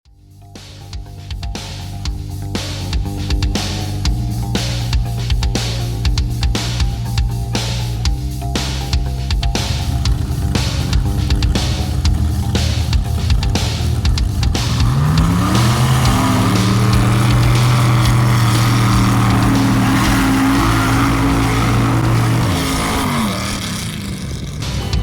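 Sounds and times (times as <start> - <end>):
truck engine revving: 8.5 - 25.0.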